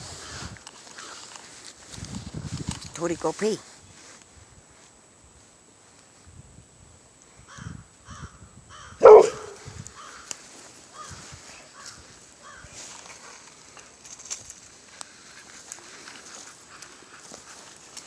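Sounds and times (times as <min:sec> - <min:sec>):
dog barking: 0:09.0 - 0:09.7
footsteps: 0:09.4 - 0:18.0.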